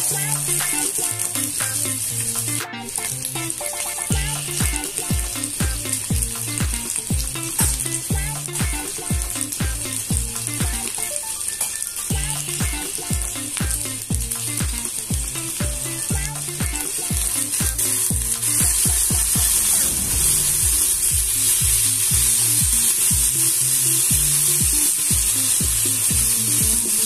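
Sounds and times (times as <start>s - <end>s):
background music with drum beat: 0.0s - 27.0s
food sizzling in hot oil: 0.0s - 27.0s.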